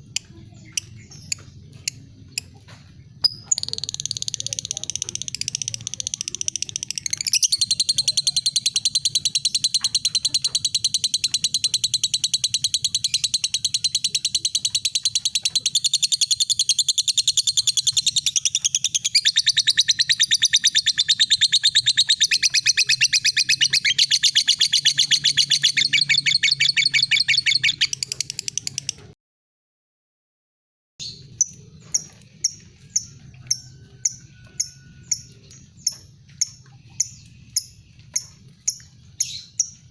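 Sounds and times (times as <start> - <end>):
lovebird chattering: 3.2 - 29.1, 31.0 - 39.9
lovebird ticking: 31.4 - 39.9.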